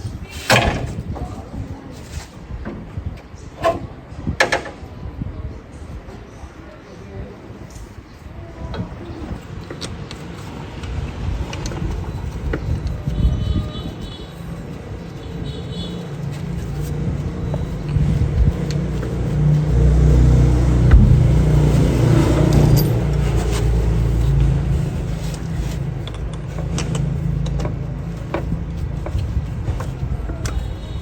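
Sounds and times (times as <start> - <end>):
car engine rumbling: 14.6 - 30.9.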